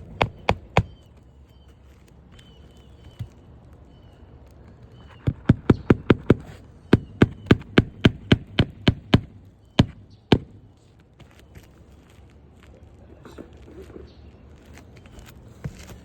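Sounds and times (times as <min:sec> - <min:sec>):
hammer nailing roof shingle: 0:00.0 - 0:01.0, 0:05.0 - 0:10.8.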